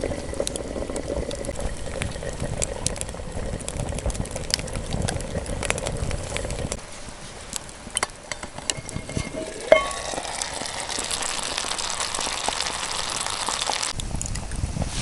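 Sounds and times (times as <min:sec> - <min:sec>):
food sizzling in frying pan: 0:09.1 - 0:14.0.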